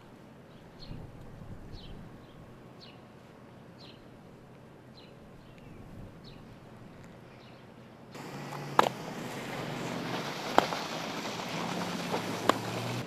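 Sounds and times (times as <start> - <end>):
outdoor noise: 0.0 - 13.0
sledgehammer striking ice: 9.8 - 13.0.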